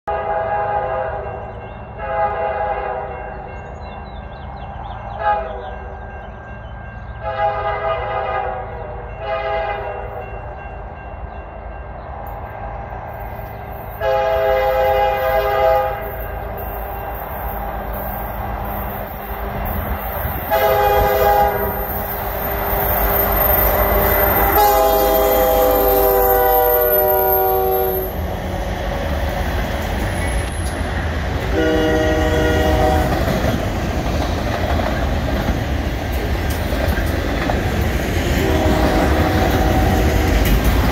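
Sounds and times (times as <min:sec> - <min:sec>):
locomotive air horn: 0:00.1 - 0:01.3, 0:02.0 - 0:03.2, 0:05.2 - 0:05.8, 0:07.2 - 0:10.2, 0:14.0 - 0:16.4, 0:20.3 - 0:22.8, 0:23.5 - 0:28.7, 0:31.5 - 0:33.2, 0:38.4 - 0:40.2.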